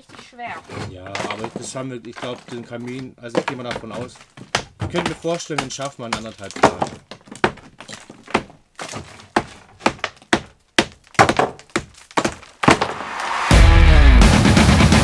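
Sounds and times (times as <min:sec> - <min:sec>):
hammer knocking bricks: 0:00.0 - 0:13.0
distorted guitar music: 0:13.5 - 0:15.0.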